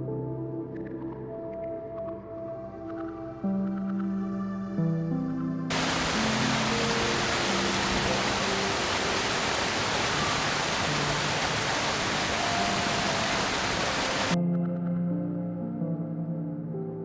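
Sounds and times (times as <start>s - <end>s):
soft ambient music: 0.0s - 17.0s
steady rushing noise: 5.7s - 14.4s.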